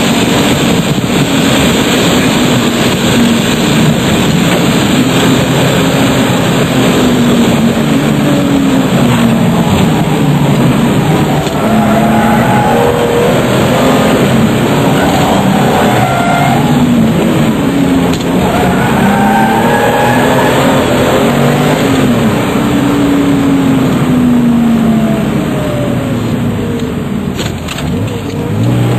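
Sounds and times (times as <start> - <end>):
wind rushing: 0.0 - 25.2
car engine revving at speed: 0.0 - 28.9
road noise: 0.0 - 28.9.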